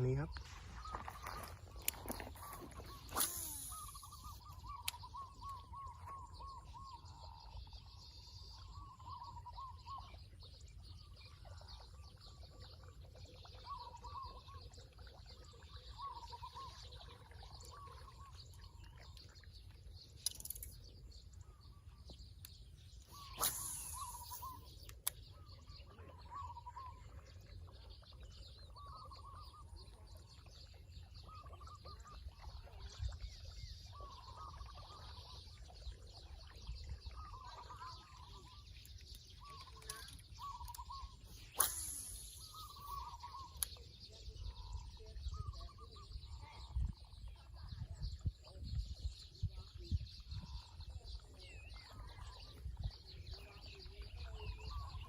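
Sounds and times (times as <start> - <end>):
bird warbling: 0.0 - 7.1, 23.0 - 27.2, 37.1 - 45.8.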